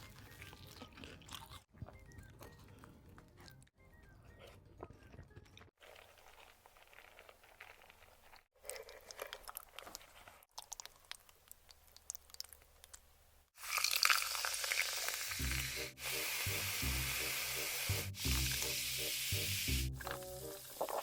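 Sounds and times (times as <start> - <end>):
food sizzling on a hot pan: 13.6 - 21.0.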